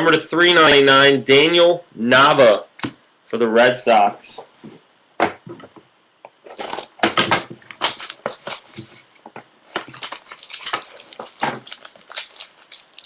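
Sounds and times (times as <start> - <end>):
packaging crinkling and tearing: 6.4 - 7.0, 7.7 - 8.8, 9.7 - 13.0.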